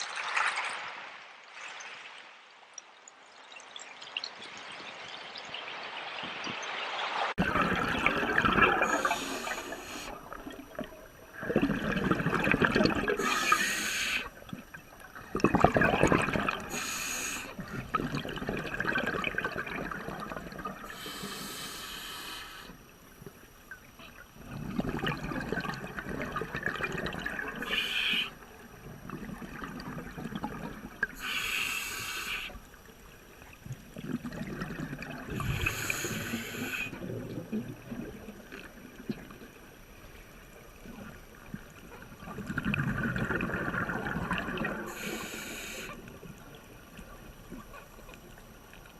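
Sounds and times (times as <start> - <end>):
running and trickling water: 0.0 - 22.1.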